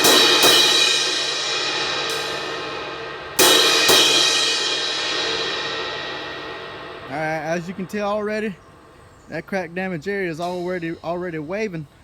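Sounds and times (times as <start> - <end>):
crash cymbal struck: 0.0 - 9.3
crash cymbal ringing: 0.0 - 9.8.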